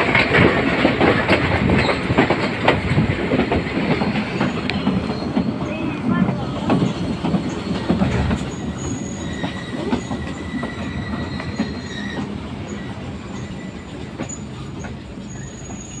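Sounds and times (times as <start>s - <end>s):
train wheels rumbling on rails: 0.0s - 16.0s
high wheel squeal: 4.3s - 6.0s, 6.8s - 16.0s.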